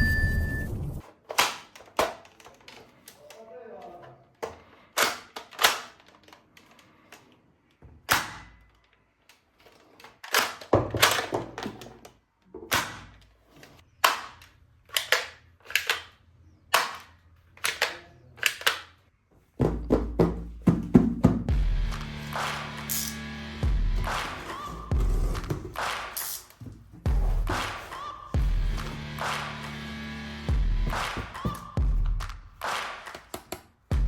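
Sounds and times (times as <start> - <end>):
toy gun snaps: 14.0 - 18.9
music: 19.8 - 26.4, 27.0 - 34.0.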